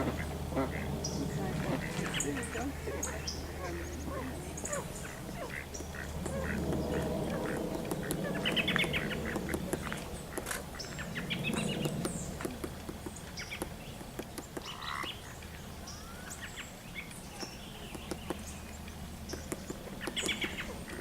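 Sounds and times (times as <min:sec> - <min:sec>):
ducks quacking: 0:00.0 - 0:12.0
small birds chirping: 0:00.0 - 0:21.0.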